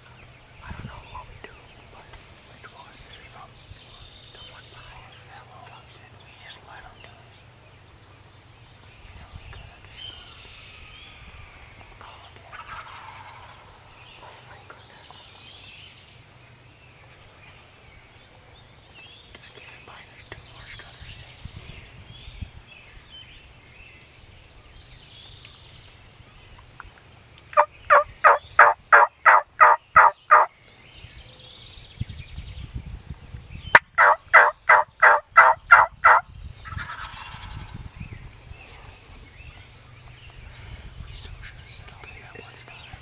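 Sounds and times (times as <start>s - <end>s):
turkey yelping: 27.6s - 30.5s, 33.8s - 36.2s.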